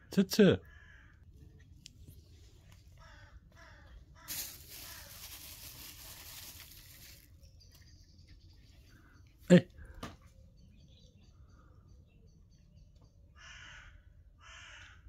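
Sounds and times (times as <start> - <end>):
crow cawing faintly: 0.6 - 1.6, 2.7 - 6.6, 13.3 - 15.0
rustling noise: 4.2 - 7.4.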